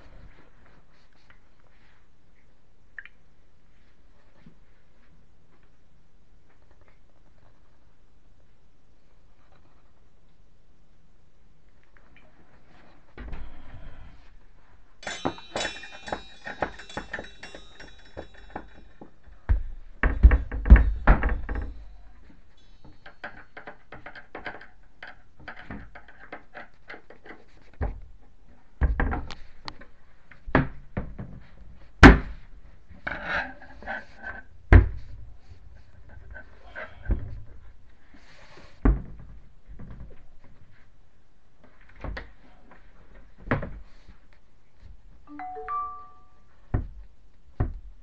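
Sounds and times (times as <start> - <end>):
metal basket clattering: 15.0 - 19.1
ringing metallic clinks: 15.0 - 19.2.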